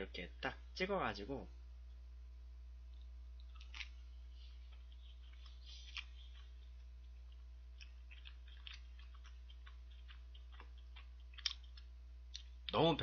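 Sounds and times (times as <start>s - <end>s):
wet mouth clicks and smacks: 2.9s - 4.0s, 4.6s - 12.6s
person chewing: 2.9s - 12.8s.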